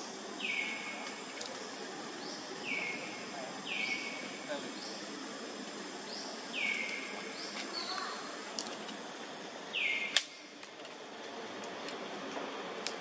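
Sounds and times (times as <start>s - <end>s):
sharp click: 10.1s - 10.4s.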